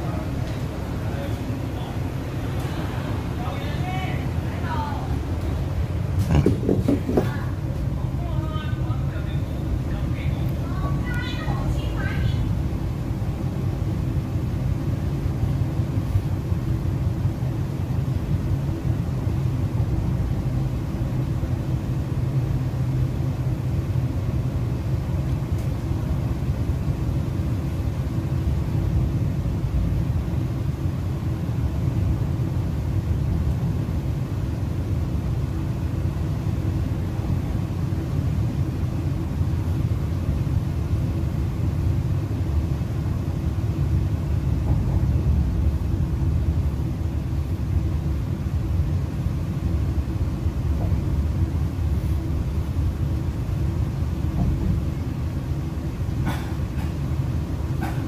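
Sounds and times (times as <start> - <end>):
faint steady hum: 0.0 - 58.0
wheels rumbling on rails: 0.0 - 58.0.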